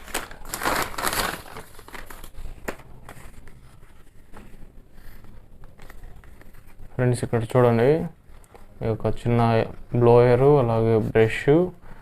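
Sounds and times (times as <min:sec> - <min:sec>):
packaging crinkling and rustling: 0:00.0 - 0:06.8.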